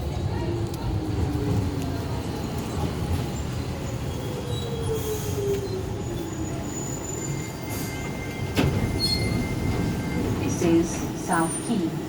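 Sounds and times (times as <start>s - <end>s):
train low rumble: 0.0s - 12.0s
high wheel squeals: 3.7s - 10.6s.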